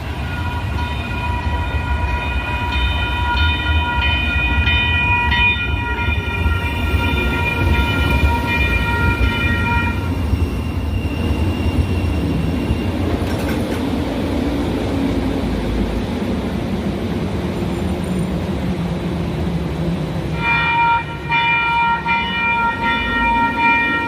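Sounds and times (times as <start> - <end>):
train rumbling on rails: 0.0 - 24.0
train horn: 0.2 - 10.3, 20.3 - 24.0.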